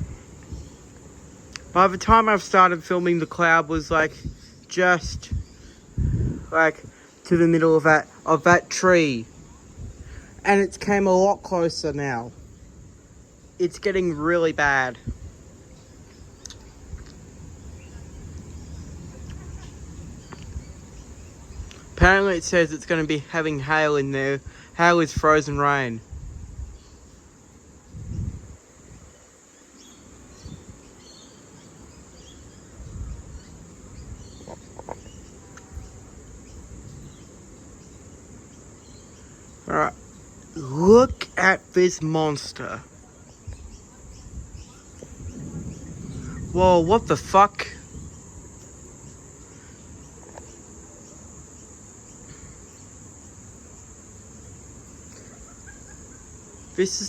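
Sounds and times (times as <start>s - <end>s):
wind gusts on microphone: 0.0s - 39.0s, 40.6s - 53.2s
crickets chirping: 0.0s - 57.0s
high-pitched insect drone: 0.0s - 57.0s
low rumbling noise: 5.0s - 23.8s, 44.1s - 49.4s.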